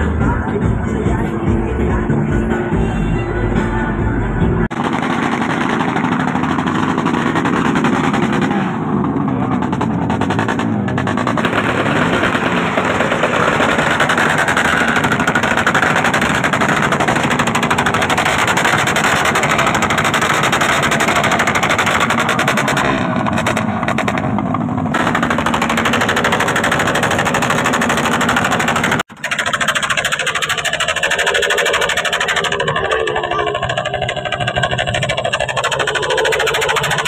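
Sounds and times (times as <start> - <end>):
music: 0.0 - 4.7
motorcycle engine revving: 4.6 - 37.0.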